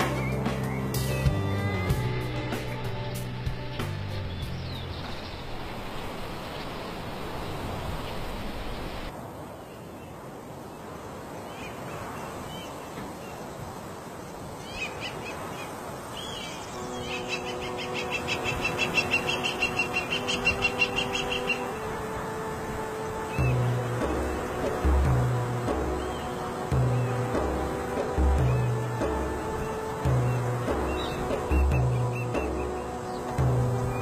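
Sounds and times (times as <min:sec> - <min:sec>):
rapid pulsing bird call: 0:14.6 - 0:22.0, 0:23.0 - 0:34.0.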